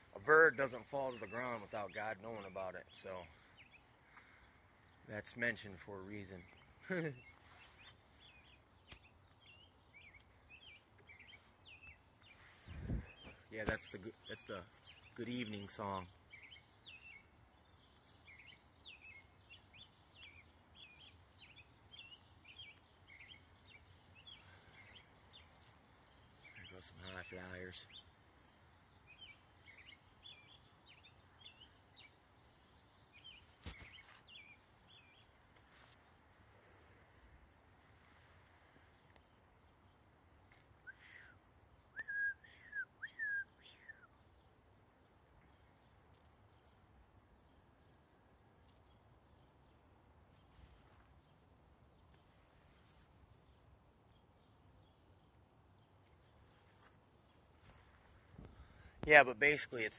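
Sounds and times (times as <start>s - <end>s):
songbirds chirping: 0.0s - 59.9s
whistled notes: 42.0s - 44.0s.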